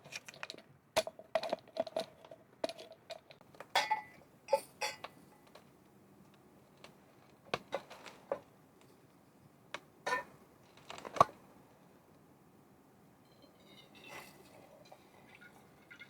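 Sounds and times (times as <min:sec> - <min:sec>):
objects knocking and clicking: 0:00.0 - 0:04.2.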